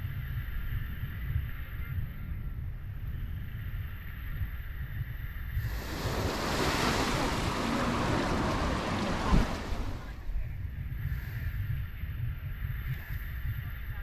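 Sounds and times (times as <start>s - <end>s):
wind rumble on microphone: 0.0s - 14.0s
wave breaking on sand: 5.6s - 10.4s.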